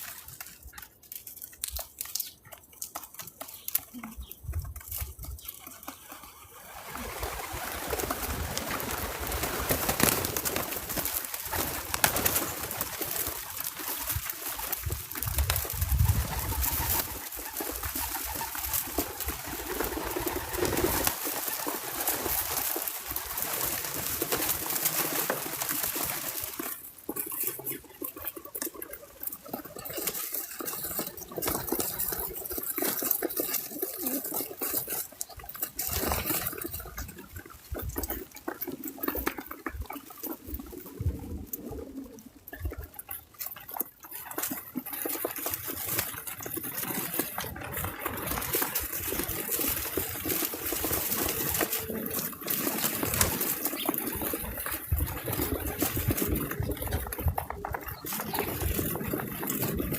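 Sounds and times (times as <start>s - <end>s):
dove cooing: 6.3s - 43.3s, 44.2s - 59.9s.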